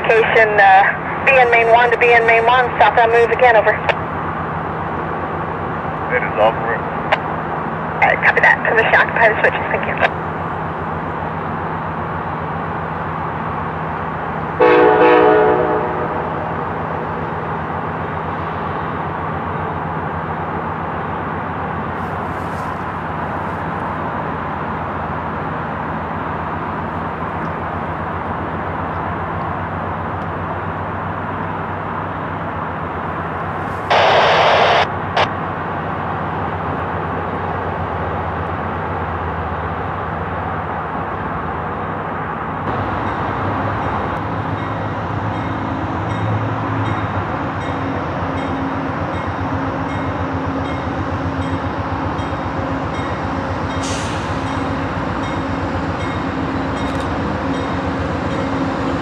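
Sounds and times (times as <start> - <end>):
train rumbling on rails: 0.0 - 59.0
click: 56.8 - 57.1.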